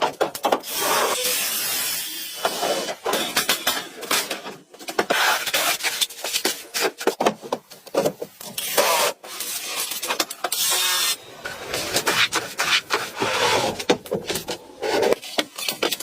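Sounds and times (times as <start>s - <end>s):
scraping and rubbing: 8.5s - 16.0s.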